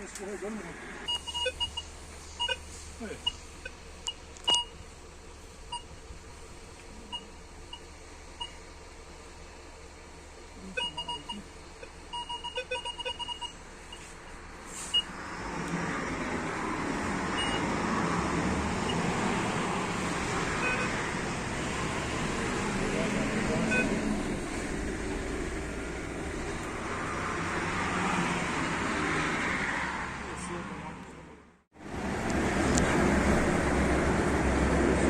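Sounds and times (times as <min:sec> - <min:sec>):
metal detector beeping: 0:01.1 - 0:04.8, 0:10.6 - 0:14.1, 0:20.6 - 0:21.0.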